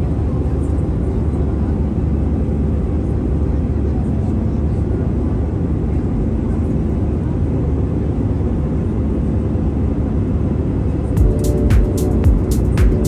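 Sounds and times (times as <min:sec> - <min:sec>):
music with sharp beat: 0:11.2 - 0:13.0.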